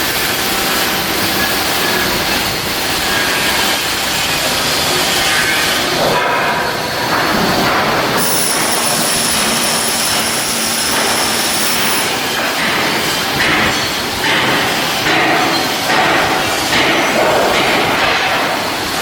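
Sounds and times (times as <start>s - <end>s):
high-pitched whine: 0.0s - 14.0s
industrial shipbuilding noise: 0.0s - 19.0s.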